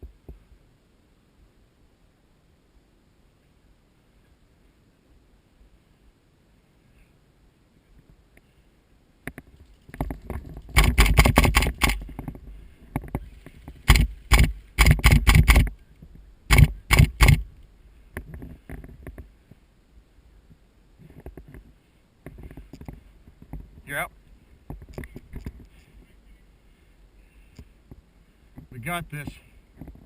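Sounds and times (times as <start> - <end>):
airsoft gun shots: 10.8 - 12.0, 13.9 - 15.7, 16.5 - 17.5.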